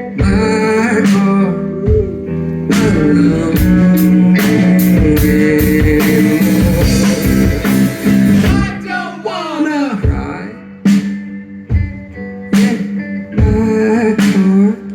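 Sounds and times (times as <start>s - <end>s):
rock band playing: 0.0s - 14.9s
drum hits: 3.6s - 8.9s.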